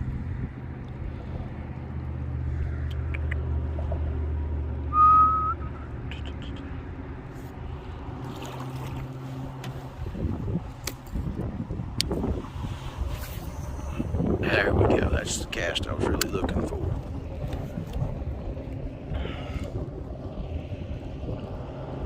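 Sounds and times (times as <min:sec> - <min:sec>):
wind and water noise: 0:00.0 - 0:22.0
high rising whistle: 0:04.9 - 0:05.9
low drone: 0:11.6 - 0:22.0.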